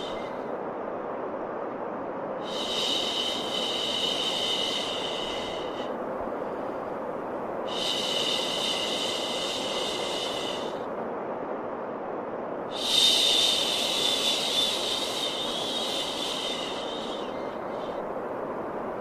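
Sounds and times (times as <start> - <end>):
white noise hiss: 0.0 - 19.0.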